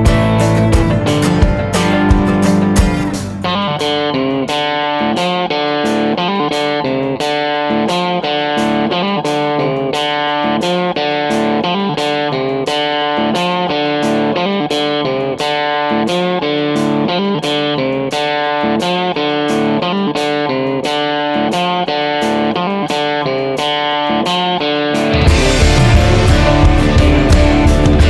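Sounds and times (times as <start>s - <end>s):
picked electric guitar: 0.0s - 28.0s.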